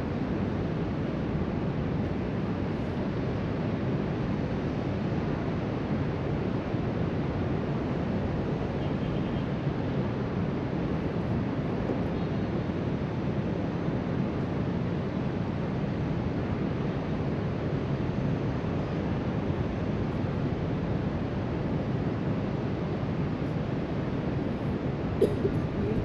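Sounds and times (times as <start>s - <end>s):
wind on microphone: 24.5s - 26.0s.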